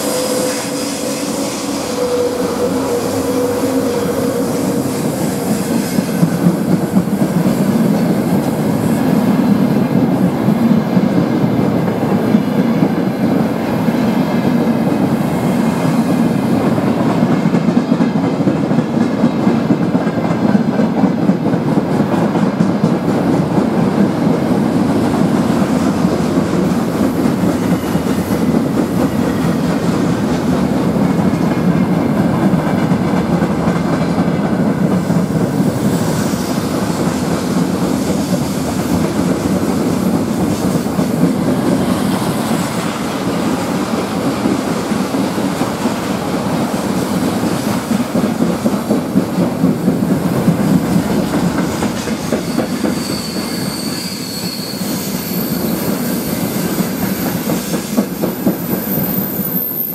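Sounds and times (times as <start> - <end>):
high wheel squeal: 0.0 - 6.2, 52.3 - 58.0, 58.6 - 59.9
train wheels rumbling on rails: 0.0 - 59.9.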